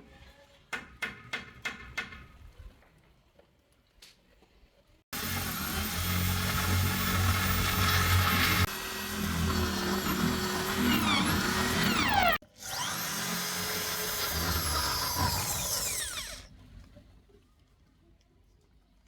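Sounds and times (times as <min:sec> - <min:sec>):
electric power tool motor: 0:05.2 - 0:16.5.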